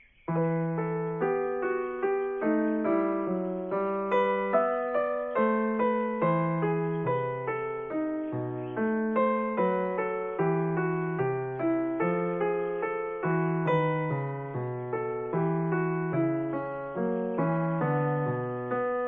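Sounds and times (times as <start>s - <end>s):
slow piano melody: 0.0s - 19.0s.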